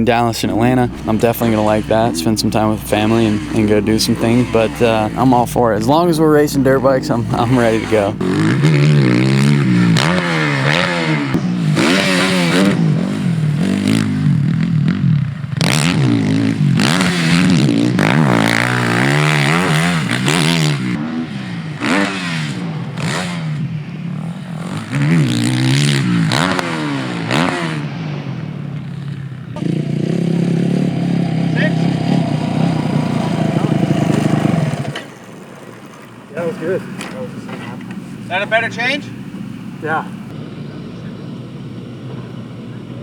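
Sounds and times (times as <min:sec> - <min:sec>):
motocross bike engine revving: 0:00.0 - 0:43.0
clatter and scraping: 0:32.3 - 0:38.4.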